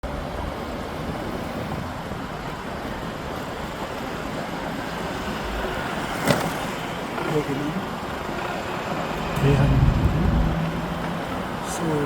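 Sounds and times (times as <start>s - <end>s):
cars passing on road: 0.0s - 12.0s.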